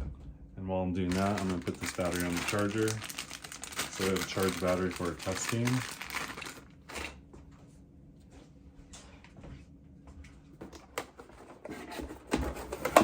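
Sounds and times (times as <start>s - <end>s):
plastic parts rustling: 1.1s - 7.2s.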